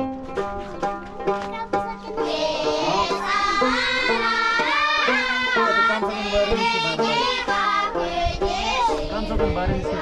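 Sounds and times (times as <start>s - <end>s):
folk song with singing voice: 2.1s - 10.0s.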